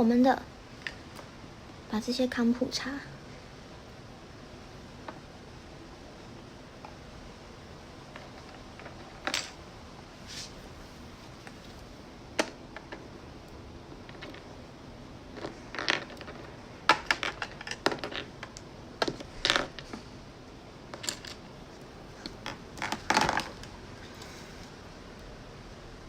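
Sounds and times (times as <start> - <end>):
plastic toy items clicking and tapping: 15.4 - 20.0.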